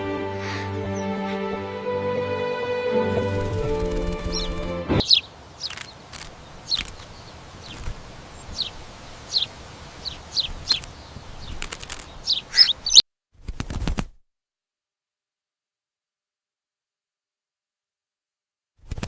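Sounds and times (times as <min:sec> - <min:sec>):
background music: 0:00.0 - 0:05.0
small bird chirping: 0:03.8 - 0:13.0.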